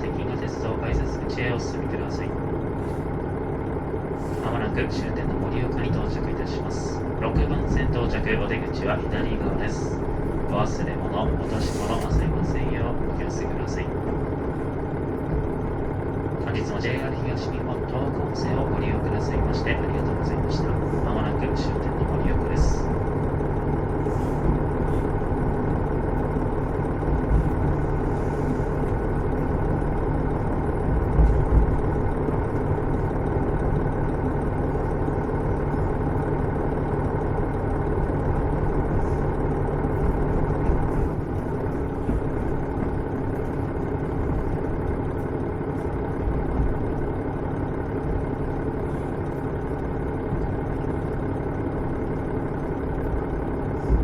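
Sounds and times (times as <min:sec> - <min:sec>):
diesel engine idling: 0:00.0 - 0:54.0
low thumps of running gear: 0:07.2 - 0:08.3, 0:24.4 - 0:34.0, 0:38.2 - 0:45.4, 0:53.1 - 0:54.0.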